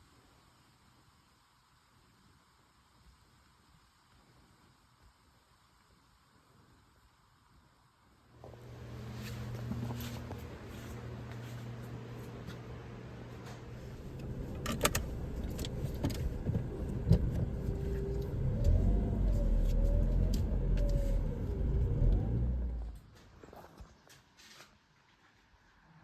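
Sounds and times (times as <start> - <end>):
car driving rumble: 13.7 - 23.0.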